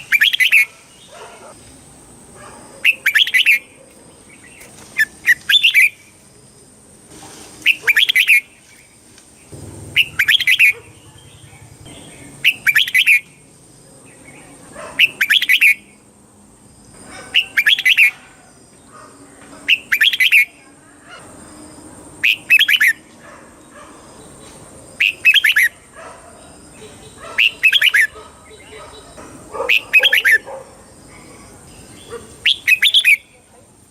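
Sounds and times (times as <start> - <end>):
bird singing warbled phrases: 0.0 - 1.6, 2.8 - 6.2, 7.6 - 16.1, 17.1 - 18.2, 19.6 - 20.8, 22.2 - 23.0, 24.2 - 33.5.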